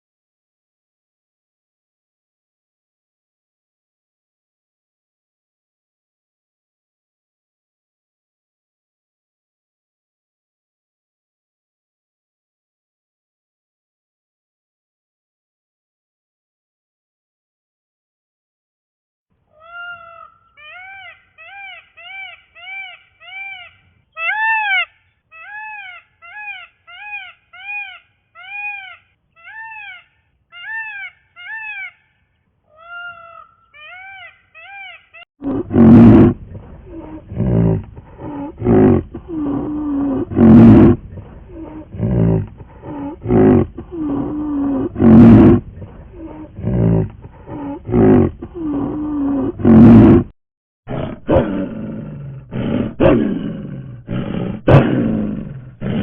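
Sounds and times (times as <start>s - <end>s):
tiger roaring and growling: 35.4s - 50.3s, 50.9s - 56.0s.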